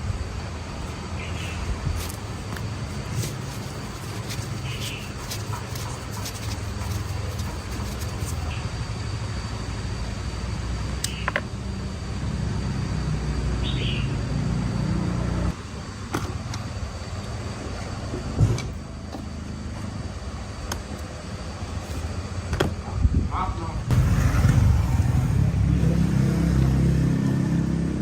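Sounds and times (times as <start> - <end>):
motorbike engine running: 2.0 - 8.6, 23.9 - 28.0.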